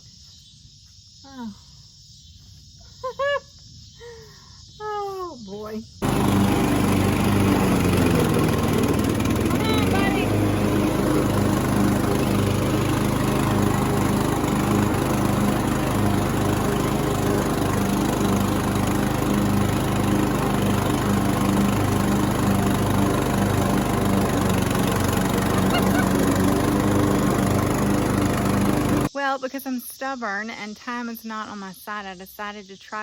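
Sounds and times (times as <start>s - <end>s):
riding lawn mower engine running: 6.0s - 29.1s.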